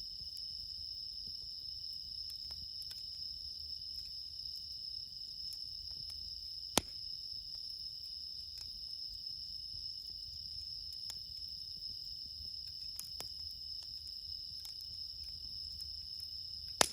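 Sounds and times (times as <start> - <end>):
crickets chirping: 0.0 - 16.9
campfire crackling: 0.1 - 16.9
fire popping: 5.5 - 7.2, 10.1 - 16.9.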